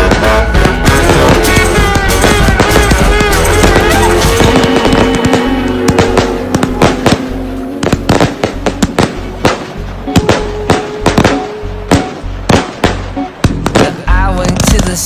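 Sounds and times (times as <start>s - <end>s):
background music: 0.0s - 15.0s
fireworks bangs and crackles: 0.0s - 15.0s.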